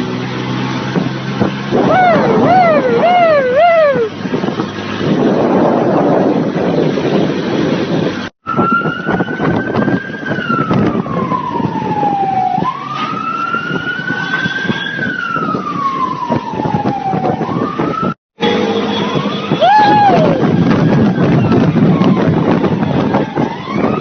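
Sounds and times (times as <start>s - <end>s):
engine noise: 0.0s - 8.3s, 18.4s - 23.6s
wind rushing: 0.8s - 12.6s
police siren wailing: 1.7s - 4.4s, 8.4s - 24.0s.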